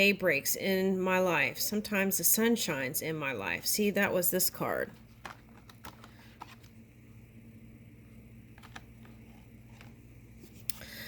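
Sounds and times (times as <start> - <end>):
low steady hum: 0.0 - 11.0
faint clicks and taps: 5.1 - 6.8, 8.6 - 10.0.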